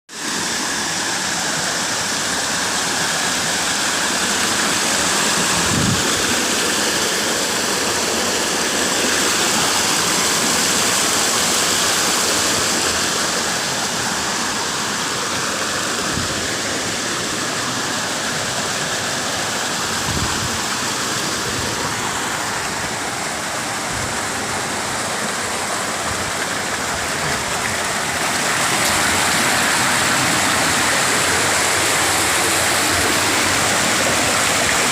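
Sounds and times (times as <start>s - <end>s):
fast-flowing water rushing: 0.1s - 34.9s.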